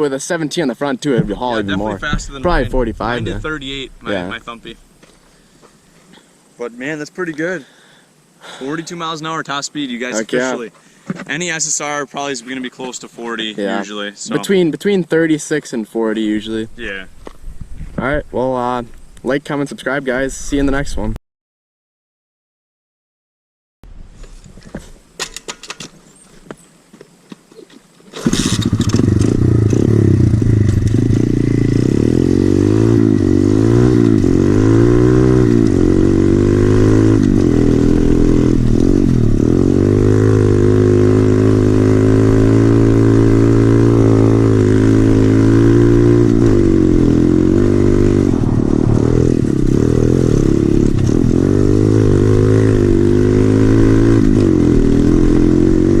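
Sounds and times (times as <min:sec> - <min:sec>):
motorbike engine revving: 0:01.2 - 0:05.0, 0:28.2 - 0:56.0.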